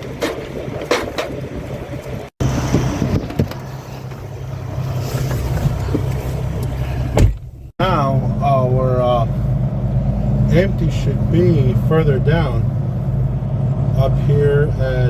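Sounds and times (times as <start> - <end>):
truck diesel engine humming: 0.0 - 15.0.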